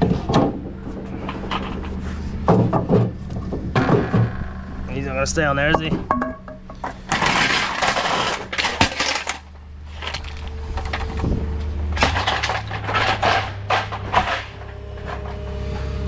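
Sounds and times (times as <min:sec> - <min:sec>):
low engine hum: 0:00.0 - 0:07.1, 0:09.3 - 0:16.0
metallic clattering and knocks: 0:05.6 - 0:09.4, 0:12.0 - 0:15.4.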